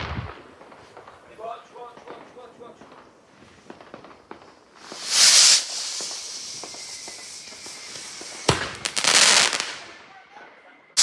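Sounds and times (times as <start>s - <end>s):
firework bang and cracks: 0.0s - 10.1s
firework hiss: 3.3s - 10.0s.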